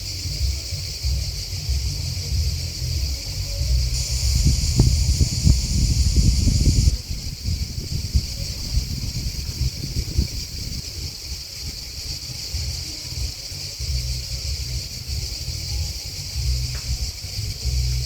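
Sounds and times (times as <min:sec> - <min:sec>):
grasshoppers and crickets chirping: 0:00.0 - 0:18.0
low rumble: 0:01.2 - 0:10.8.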